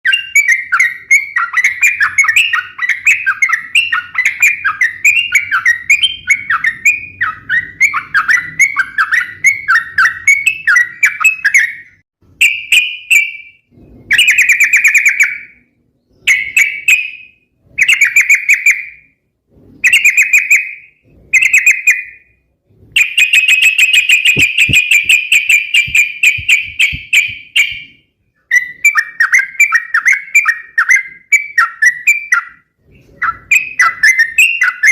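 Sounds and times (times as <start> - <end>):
bulbul singing: 23.0 - 32.5.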